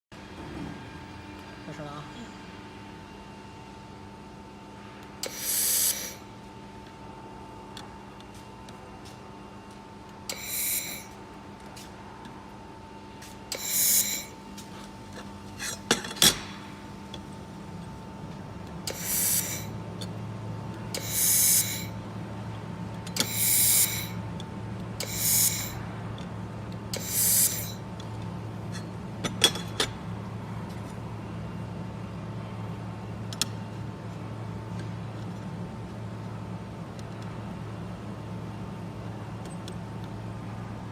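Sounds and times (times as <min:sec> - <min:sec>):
laser welder hissing bursts: 0:05.2 - 0:06.2, 0:13.6 - 0:14.3, 0:18.9 - 0:19.7, 0:21.0 - 0:21.9, 0:23.2 - 0:24.2, 0:25.0 - 0:25.8, 0:27.0 - 0:27.8.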